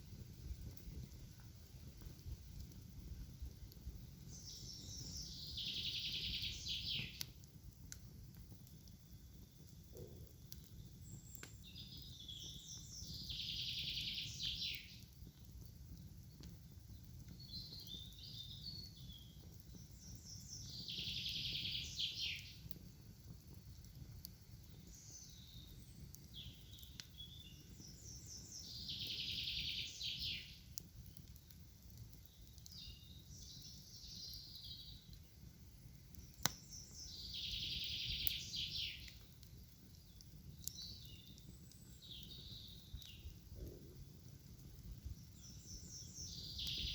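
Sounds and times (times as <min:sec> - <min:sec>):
songbird singing: 0:04.2 - 0:07.4, 0:09.0 - 0:15.4, 0:16.8 - 0:22.7, 0:24.6 - 0:31.4, 0:32.2 - 0:35.3, 0:36.0 - 0:44.1, 0:44.8 - 0:46.9.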